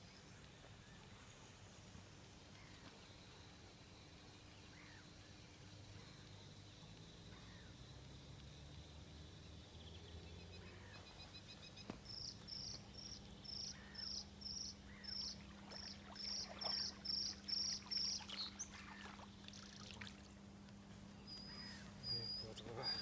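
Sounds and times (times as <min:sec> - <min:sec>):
faint low hum: 0:00.0 - 0:23.0
bird chirping: 0:09.4 - 0:19.9, 0:21.1 - 0:23.0.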